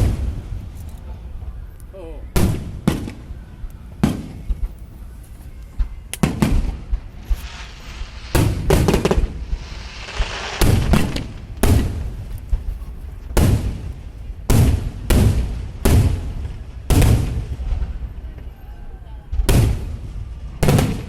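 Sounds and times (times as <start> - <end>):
fireworks booming: 0.0 - 21.0
crackling hiss of sparks: 4.4 - 14.3.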